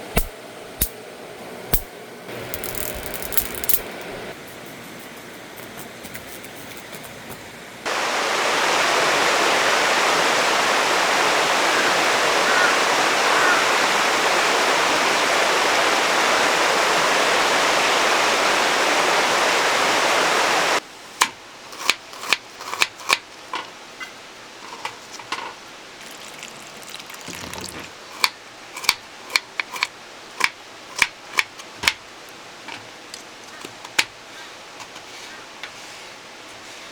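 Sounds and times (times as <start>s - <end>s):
stream rushing: 7.8s - 20.8s.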